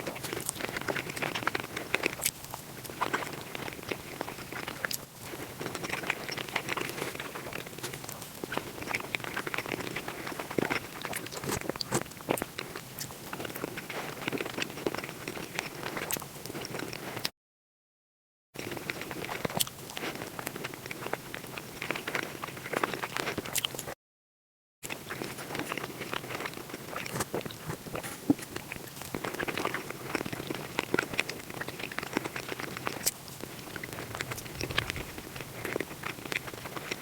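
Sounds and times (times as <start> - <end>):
rapid crunching and chewing: 0.0 - 17.3, 18.6 - 24.0, 24.8 - 37.0.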